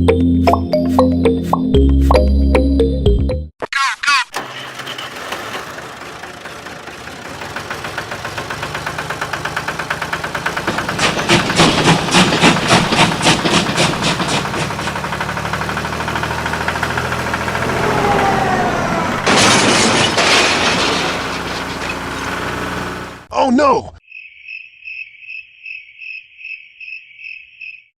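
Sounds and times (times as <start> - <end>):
small engine chugging: 4.3 - 19.1.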